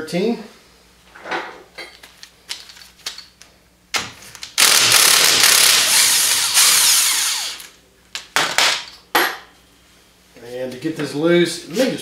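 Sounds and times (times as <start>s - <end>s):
power tool running: 4.6s - 7.7s.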